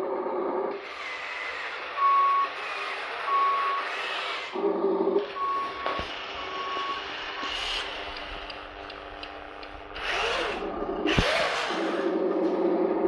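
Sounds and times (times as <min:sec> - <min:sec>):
synthetic engine hum: 0:00.0 - 0:13.0
small electric motors whirring: 0:00.7 - 0:12.8
reversing beep: 0:01.0 - 0:04.5, 0:05.2 - 0:08.2.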